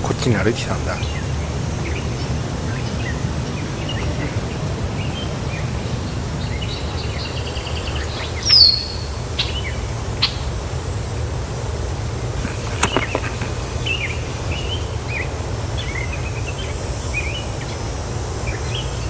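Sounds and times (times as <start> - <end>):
steady low rumble: 0.0 - 8.2
birds chirping and trilling: 0.0 - 10.5, 12.5 - 17.8.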